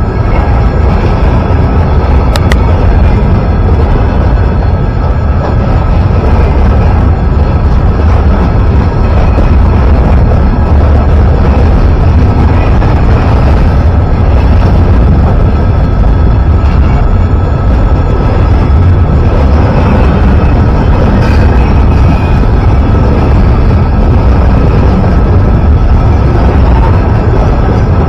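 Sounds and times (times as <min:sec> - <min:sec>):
train rumbling past: 0:00.0 - 0:28.0.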